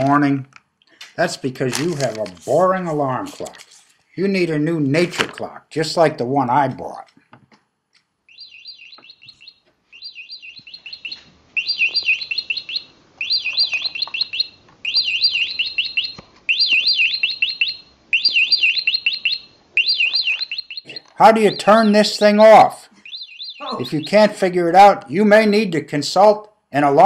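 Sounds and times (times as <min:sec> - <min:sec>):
alarm clock bird chirping: 0:08.3 - 0:24.4.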